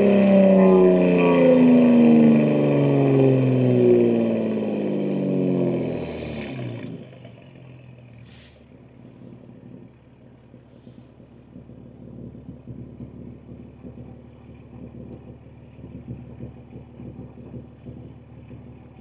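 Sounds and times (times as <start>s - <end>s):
car exhaust revs dropping: 0.0s - 14.0s.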